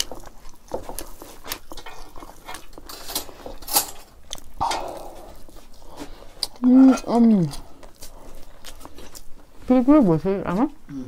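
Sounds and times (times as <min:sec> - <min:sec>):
person chewing with wet smacks: 0:00.0 - 0:02.9, 0:04.1 - 0:09.7.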